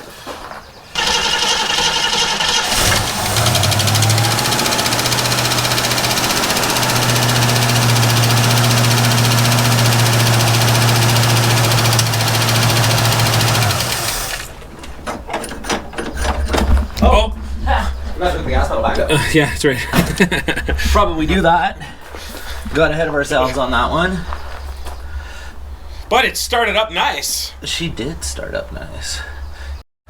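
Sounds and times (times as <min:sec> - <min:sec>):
car engine starting and idling: 0:01.0 - 0:14.7.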